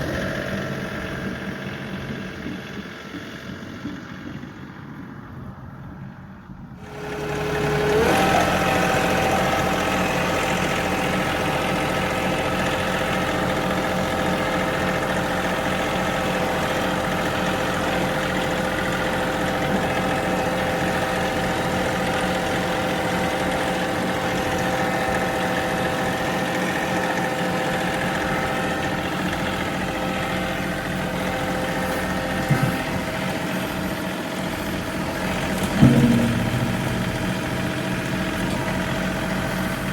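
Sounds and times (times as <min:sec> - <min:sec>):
tractor diesel engine revving: 0:00.0 - 0:05.4, 0:06.8 - 0:39.9.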